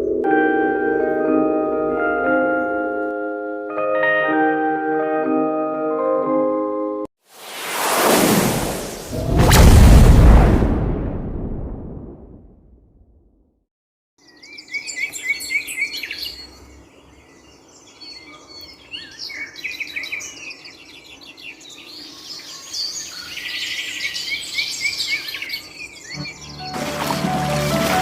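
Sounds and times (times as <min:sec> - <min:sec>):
boom: 0:07.7 - 0:13.1
birds chirping and singing: 0:14.2 - 0:27.0.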